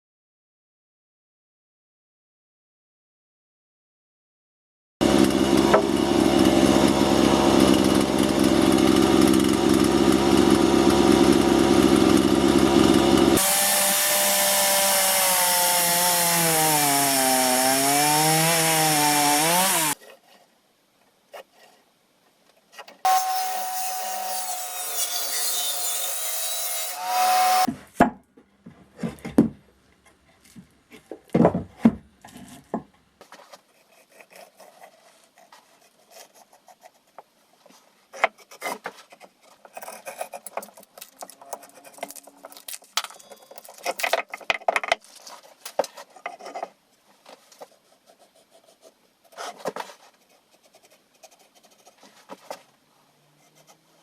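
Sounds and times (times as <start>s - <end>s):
power tool running: 5.0s - 20.0s, 23.1s - 27.7s
metal and wood knocks and scrapes: 27.7s - 33.7s, 38.2s - 47.7s.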